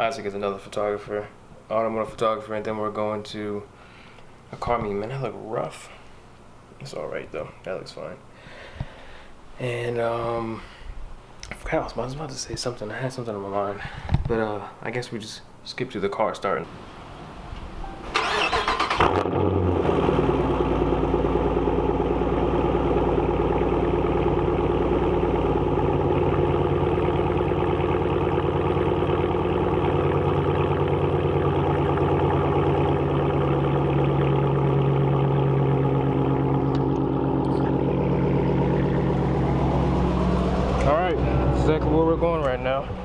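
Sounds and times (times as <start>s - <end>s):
car engine starting and idling: 16.7s - 43.0s.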